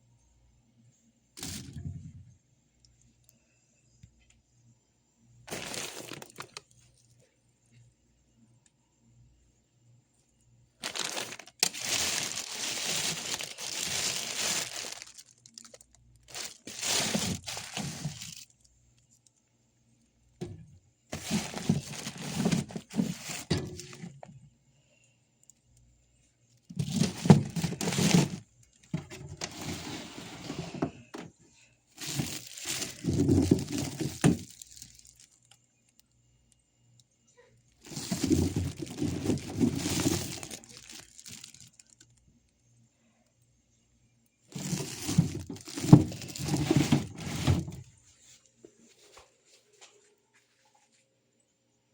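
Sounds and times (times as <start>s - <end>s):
crackling and rustling: 1.4s - 2.2s, 5.5s - 7.0s, 10.8s - 19.3s, 20.4s - 24.3s, 26.6s - 31.3s, 32.0s - 36.0s, 37.8s - 42.2s, 44.5s - 51.0s.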